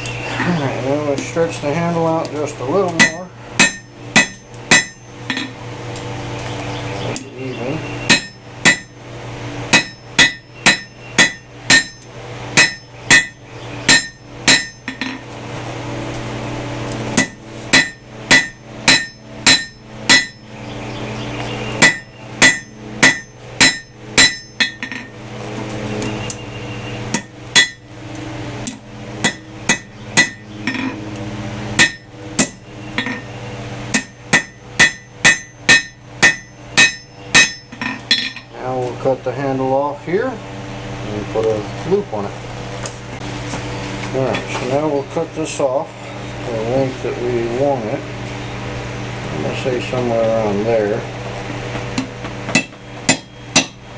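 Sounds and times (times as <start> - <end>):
steady low hum: 0.0 - 53.9
hammer ringing on anvil: 3.0 - 5.6, 8.1 - 9.0, 9.7 - 15.2, 17.2 - 20.5, 21.8 - 25.1, 27.1 - 27.9, 29.2 - 31.0, 31.8 - 33.3, 33.9 - 38.5, 52.5 - 53.8.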